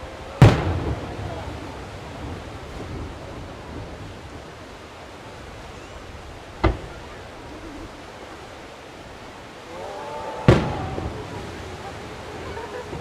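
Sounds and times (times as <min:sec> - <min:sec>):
background hiss: 0:00.0 - 0:13.0
firework shell booms: 0:00.4 - 0:03.9, 0:06.6 - 0:07.0, 0:10.5 - 0:11.3.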